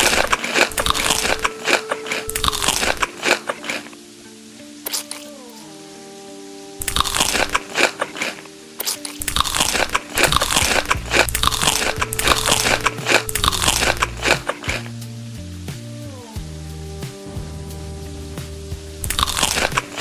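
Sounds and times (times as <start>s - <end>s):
person chewing crisp food: 0.0s - 4.0s, 6.8s - 14.9s, 19.0s - 20.0s
background music sustained notes: 0.0s - 20.0s.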